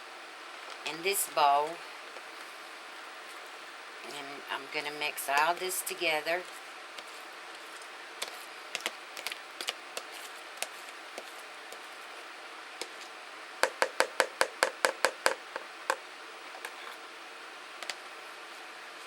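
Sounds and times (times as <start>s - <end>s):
utensil knocking against a bowl: 13.6s - 15.6s.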